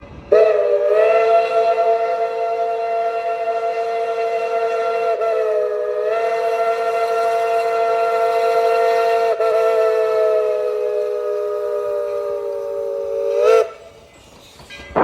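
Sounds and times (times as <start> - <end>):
steam locomotive whistle: 0.3 - 14.3.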